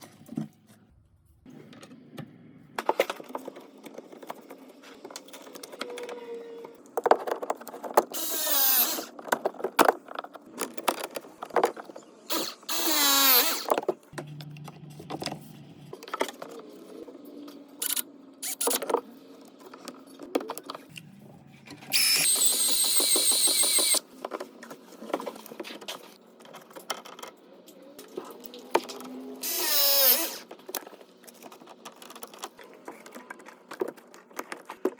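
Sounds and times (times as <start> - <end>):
power drill whine: 8.2 - 9.1, 12.3 - 13.7, 21.9 - 24.0, 29.4 - 30.4.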